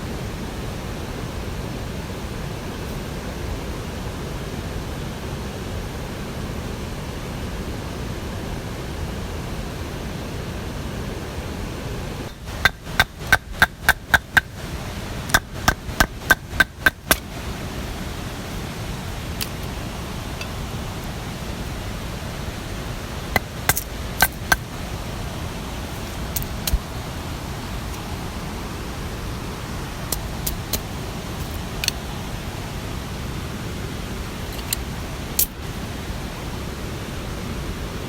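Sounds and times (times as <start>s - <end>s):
rushing water or rain: 0.0s - 38.0s
sharp ringing knocks: 12.3s - 14.6s.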